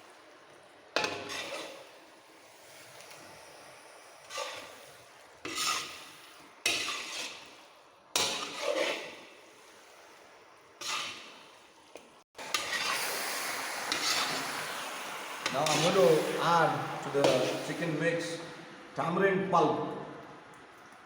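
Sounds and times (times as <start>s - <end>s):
chicken sizzling in a pan: 0.0s - 11.7s, 12.4s - 17.9s
ladle scraping a pan: 1.0s - 11.7s, 12.4s - 14.7s, 15.4s - 17.9s.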